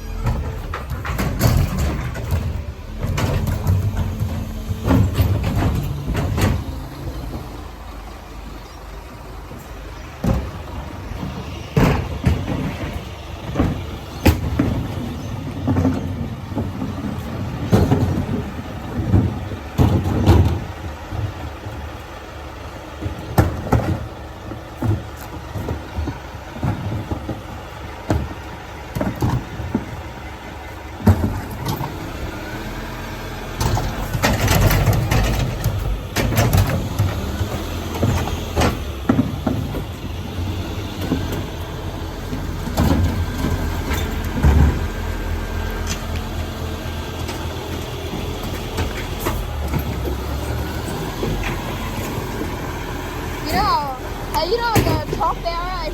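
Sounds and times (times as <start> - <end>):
bangs and clanks: 0.0 - 7.5, 10.2 - 20.7
garbage truck engine running: 0.0 - 55.9.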